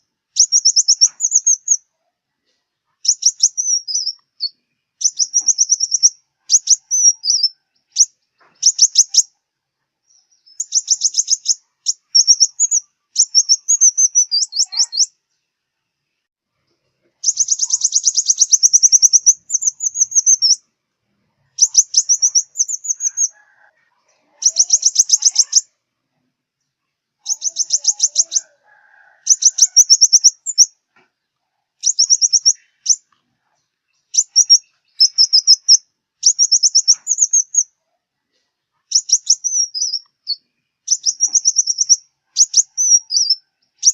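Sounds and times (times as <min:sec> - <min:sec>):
bird trills and chips: 0:00.4 - 0:01.8, 0:03.0 - 0:09.3, 0:10.1 - 0:15.1, 0:17.2 - 0:20.6, 0:21.5 - 0:23.6, 0:24.4 - 0:25.7, 0:27.2 - 0:30.7, 0:31.8 - 0:33.2, 0:33.9 - 0:37.7, 0:38.9 - 0:43.9.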